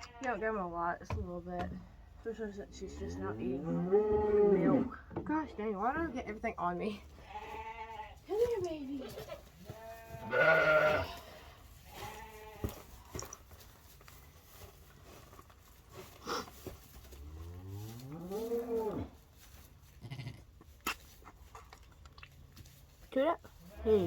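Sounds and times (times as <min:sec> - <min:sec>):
sheep bleating: 0:07.2 - 0:08.2, 0:09.7 - 0:11.3, 0:20.0 - 0:20.4
small knocks and rustling: 0:11.9 - 0:18.8.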